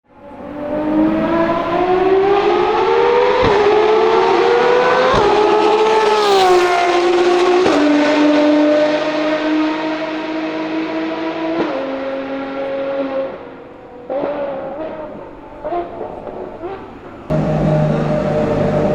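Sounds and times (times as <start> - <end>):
car engine at full throttle: 0.1 - 18.9
another engine: 0.2 - 7.8, 14.3 - 18.9.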